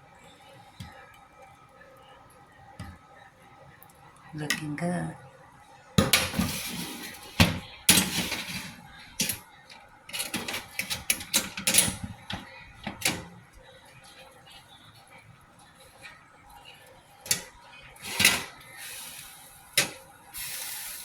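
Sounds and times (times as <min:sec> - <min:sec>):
cookware and utensils clanking: 0:06.0 - 0:09.4, 0:10.1 - 0:13.3, 0:17.2 - 0:18.7.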